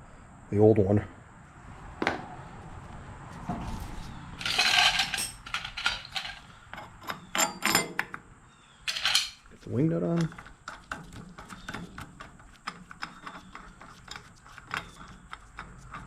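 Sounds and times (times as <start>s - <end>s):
scraping rustle: 2.8s - 6.6s.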